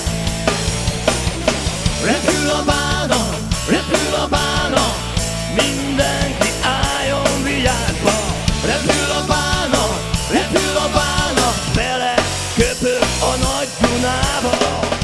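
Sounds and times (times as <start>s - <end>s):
band playing rock instrumental: 0.0s - 15.0s
bass line: 0.0s - 15.0s
fast drum beat: 0.0s - 15.0s
sliding lead melody: 0.0s - 15.0s.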